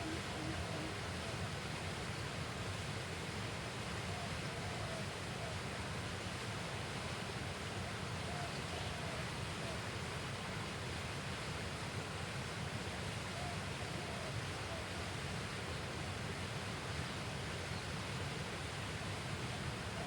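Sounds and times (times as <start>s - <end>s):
flowing river water: 0.0s - 20.0s.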